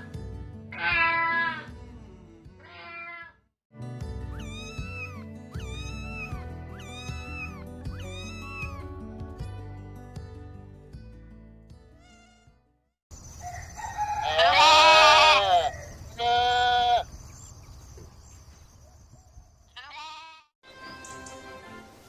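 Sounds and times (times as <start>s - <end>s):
farm animal calling: 0.8s - 1.7s, 4.4s - 8.9s, 14.0s - 17.1s, 19.7s - 20.5s.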